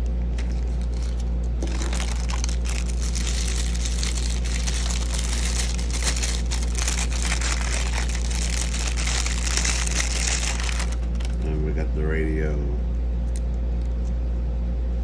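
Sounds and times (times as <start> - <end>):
packaging crinkling: 0.0 - 11.4
steady low hum: 0.0 - 15.0.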